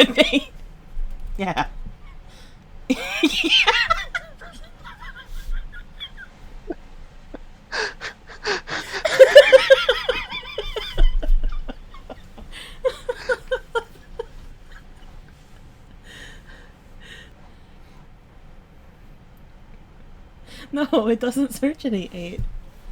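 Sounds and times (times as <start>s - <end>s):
person laughing: 0.0s - 0.5s, 2.9s - 15.5s.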